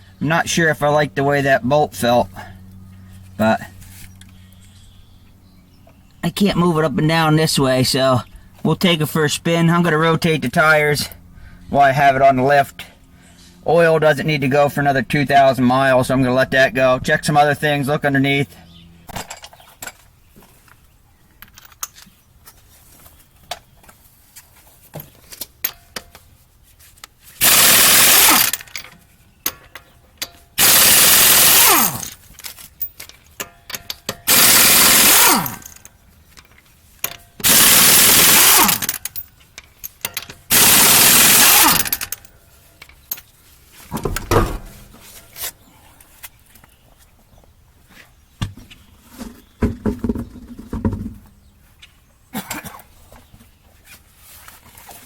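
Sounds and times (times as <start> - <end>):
impact wrench hammering: 27.4 - 28.7, 30.6 - 32.2, 33.4 - 35.8, 37.1 - 39.2, 40.0 - 42.2.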